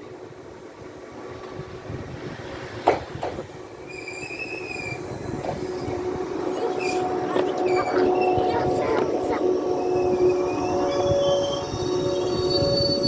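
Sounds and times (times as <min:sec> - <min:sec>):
electric train running: 0:00.7 - 0:13.0
high wheel squeal: 0:03.8 - 0:13.0.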